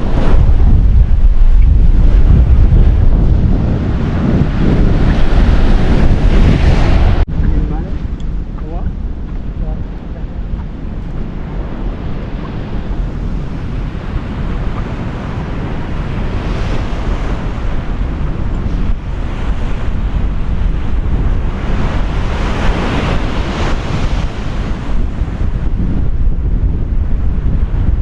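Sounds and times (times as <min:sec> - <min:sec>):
steady low rumble: 0:00.0 - 0:16.2
ocean surf: 0:00.0 - 0:28.0
wind buffeting microphone: 0:00.0 - 0:28.0.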